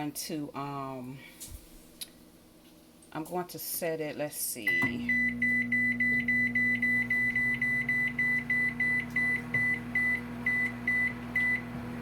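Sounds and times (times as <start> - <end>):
microwave oven humming: 4.6 - 12.0.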